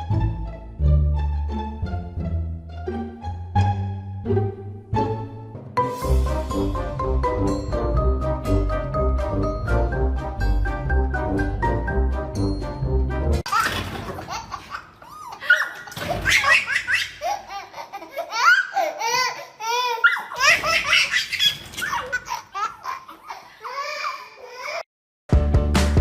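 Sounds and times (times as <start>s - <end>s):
background music: 0.0s - 13.5s, 25.3s - 26.0s
high-pitched laughter: 13.5s - 19.2s.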